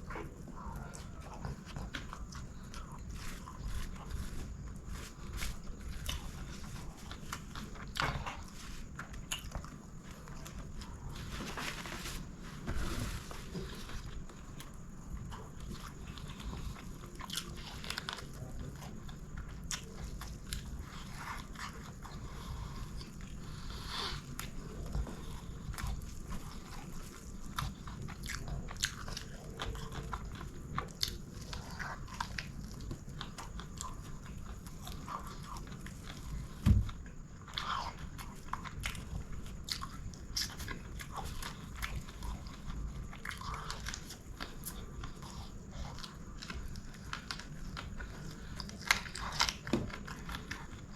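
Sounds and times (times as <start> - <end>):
chewing and biting food: 0.0 - 50.9
dull thump: 36.6 - 37.0.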